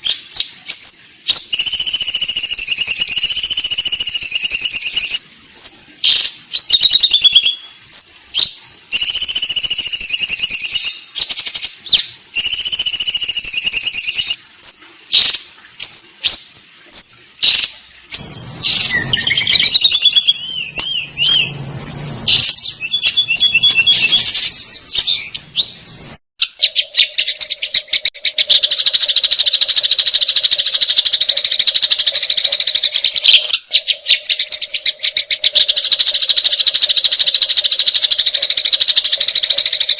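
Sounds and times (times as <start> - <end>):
sparrows chirping: 0.0 - 39.9
low hum: 18.1 - 26.2.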